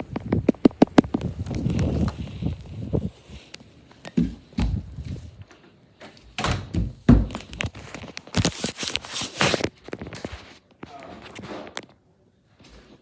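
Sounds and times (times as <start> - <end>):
dull thumps: 4.1 - 5.3, 6.5 - 7.6.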